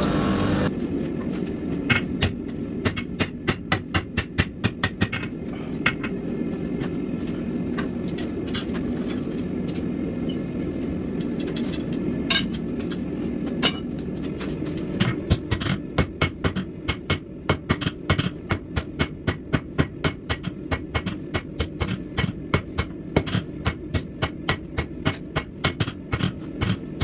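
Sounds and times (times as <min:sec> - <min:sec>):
steady low roar: 0:00.0 - 0:00.7
hammer striking steel on anvil: 0:15.5 - 0:26.8.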